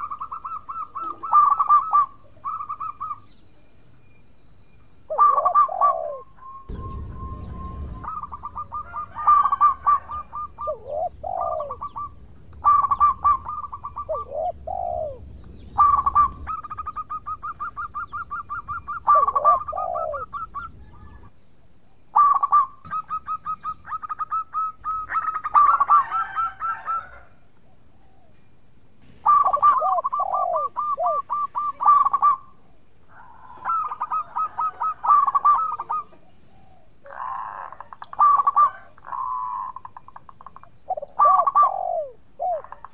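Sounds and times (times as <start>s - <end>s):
dove cooing: 0.0s - 3.3s, 5.1s - 21.3s, 22.1s - 27.4s, 29.2s - 42.9s
low rumble: 6.7s - 17.0s.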